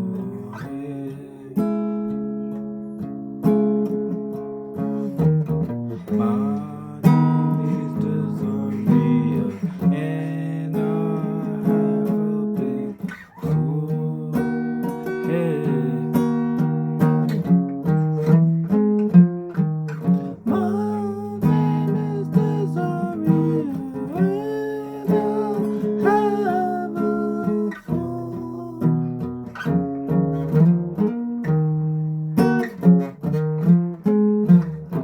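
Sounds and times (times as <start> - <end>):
wordless singing or humming: 0.0 - 1.8, 6.0 - 16.7, 20.2 - 29.5
acoustic guitar strumming: 0.0 - 35.0.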